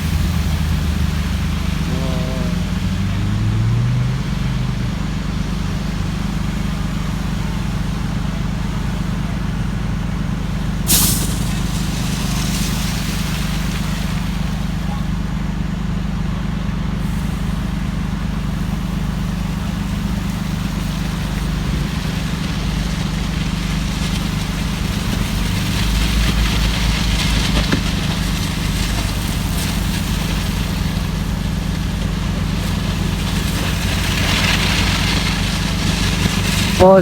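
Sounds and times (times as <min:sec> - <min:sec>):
large vehicle engine idling: 0:00.0 - 0:37.0
rushing hiss: 0:10.9 - 0:14.8.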